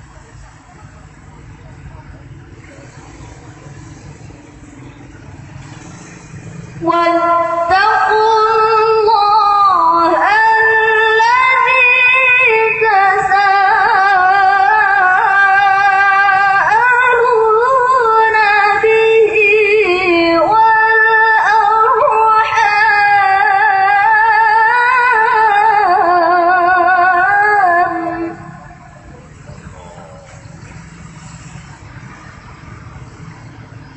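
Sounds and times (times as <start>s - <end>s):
person chanting melodically: 6.8s - 30.2s.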